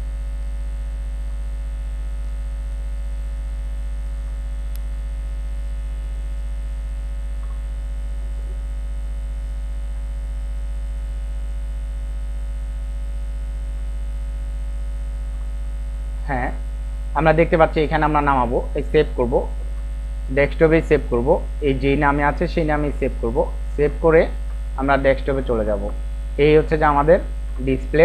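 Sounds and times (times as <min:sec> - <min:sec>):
electrical mains hum: 0:00.0 - 0:28.0
faint tick: 0:04.7 - 0:04.9.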